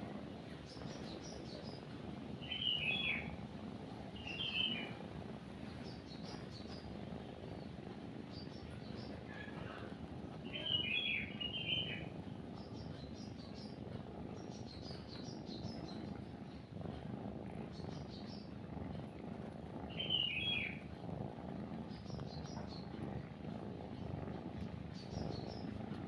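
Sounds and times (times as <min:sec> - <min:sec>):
cat purring: 0:00.0 - 0:26.0
small birds chirping: 0:00.1 - 0:26.0
lower bird call: 0:02.4 - 0:03.3, 0:04.2 - 0:04.9, 0:10.5 - 0:12.0, 0:19.9 - 0:20.8.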